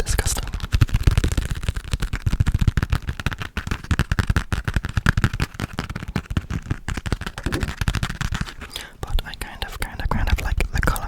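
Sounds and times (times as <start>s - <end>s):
fast tapping on a passport: 0.2s - 11.0s.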